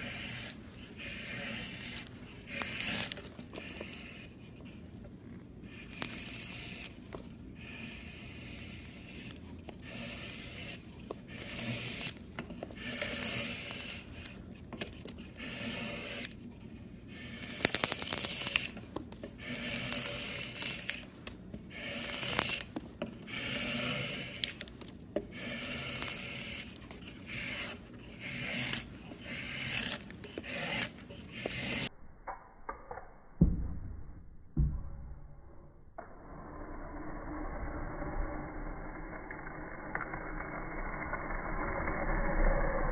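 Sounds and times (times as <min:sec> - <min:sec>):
blade scraping wood: 0:00.0 - 0:31.9.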